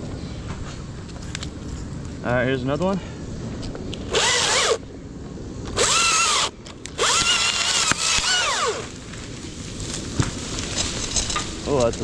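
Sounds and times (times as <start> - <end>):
chainsaw whining while cutting: 5.8 - 8.9.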